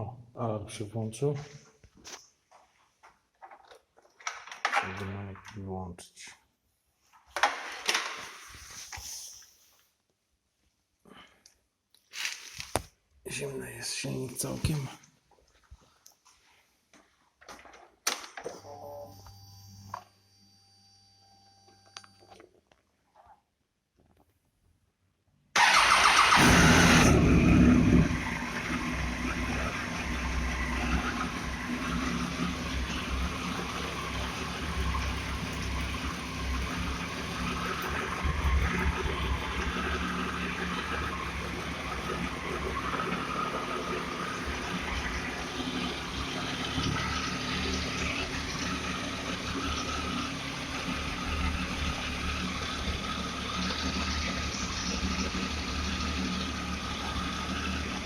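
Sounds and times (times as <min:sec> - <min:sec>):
motorcycle engine starting and idling: 0:25.6 - 0:58.0.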